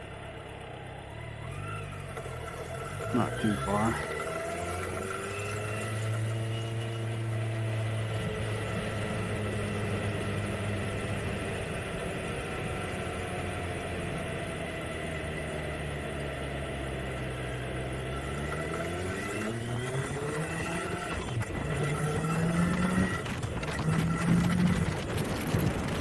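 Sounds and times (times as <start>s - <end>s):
motorcycle engine idling: 0.0s - 18.1s.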